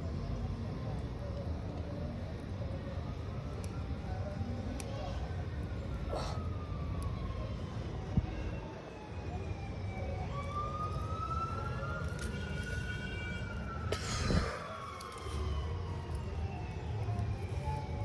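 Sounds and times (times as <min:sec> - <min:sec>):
siren wailing: 0:06.1 - 0:18.0.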